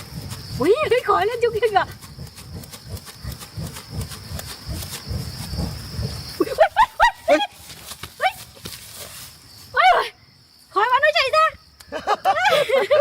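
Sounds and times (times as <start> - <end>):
low uneven rumble: 0.0 - 9.6
high-pitched insect tone: 0.0 - 13.0.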